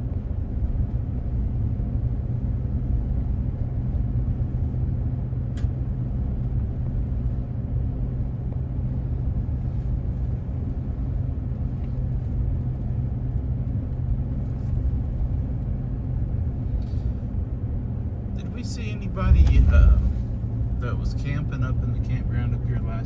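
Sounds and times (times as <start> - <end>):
truck engine and tyres rumbling: 0.0 - 23.0.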